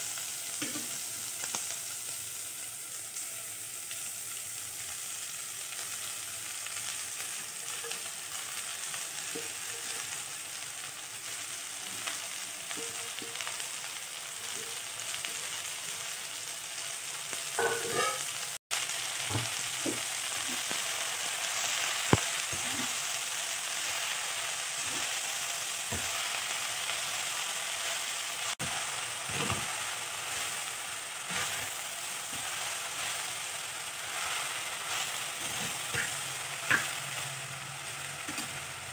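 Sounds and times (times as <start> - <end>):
leaves and shallots sizzling in oil: 0.0 - 38.9
spatula scraping a pot: 17.6 - 18.3.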